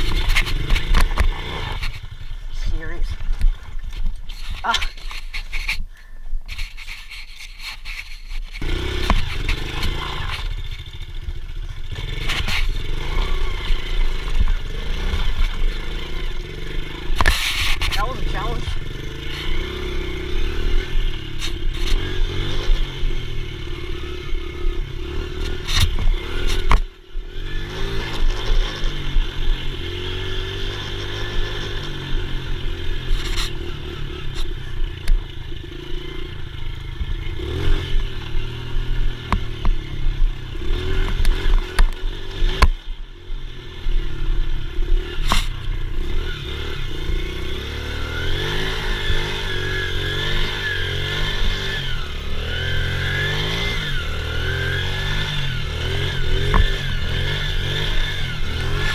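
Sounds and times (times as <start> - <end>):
clattering and scraping: 0.0 - 2.2, 3.4 - 10.9
dirt bike engine revving: 0.0 - 3.7, 8.5 - 58.9.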